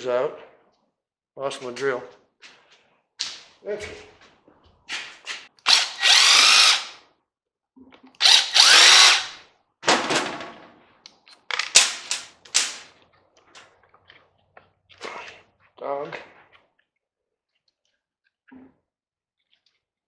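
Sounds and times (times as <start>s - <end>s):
cordless drill whining: 5.6s - 7.0s, 8.2s - 9.4s.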